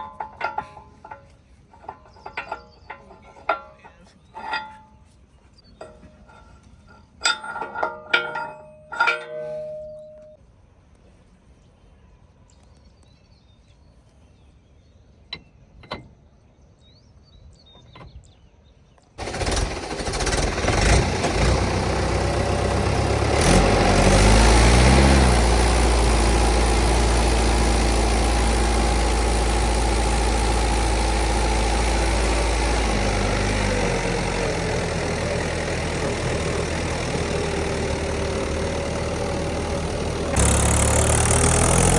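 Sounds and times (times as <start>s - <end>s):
metallic clinks: 5.8s - 10.4s
diesel tractor engine revving: 19.2s - 41.9s.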